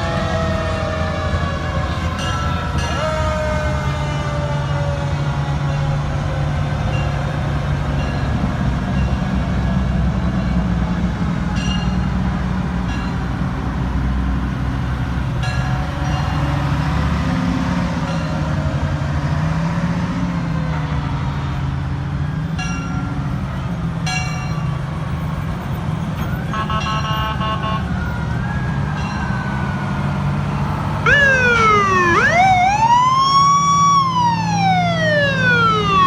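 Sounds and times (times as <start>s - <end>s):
fire truck engines rumbling: 0.0s - 36.0s
siren winding down: 28.0s - 36.0s.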